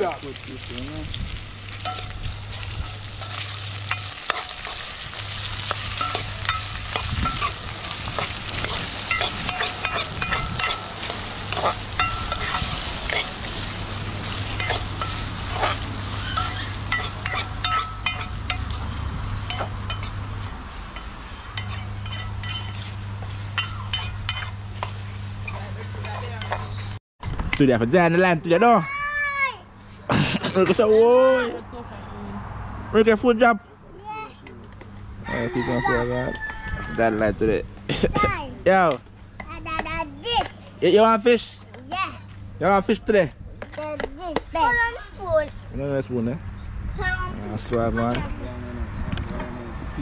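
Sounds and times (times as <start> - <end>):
food sizzling in a pot: 0.0 - 26.9
spoon scraping and clinking a pot: 2.8 - 4.9, 5.7 - 7.6, 8.2 - 13.4, 14.6 - 18.8, 19.5 - 20.2, 21.0 - 22.9, 23.5 - 26.8.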